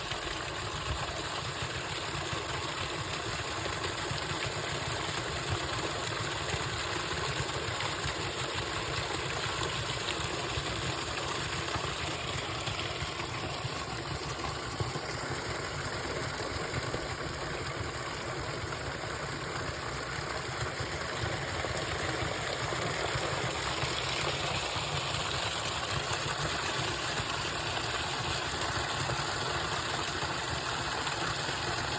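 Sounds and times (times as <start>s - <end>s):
small waterfall splashing: 0.0s - 31.9s.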